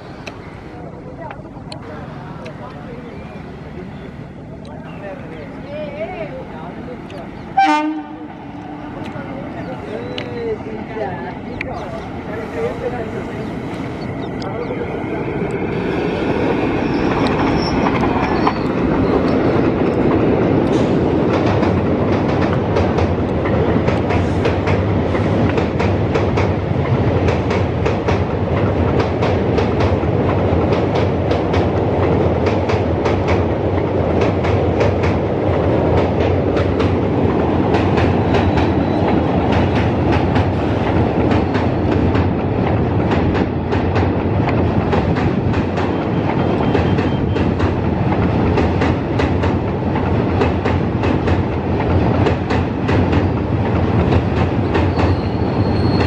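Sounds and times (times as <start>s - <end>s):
train coaches rolling past: 0.0s - 56.0s
train wheels clacking over rail joints: 16.3s - 56.0s.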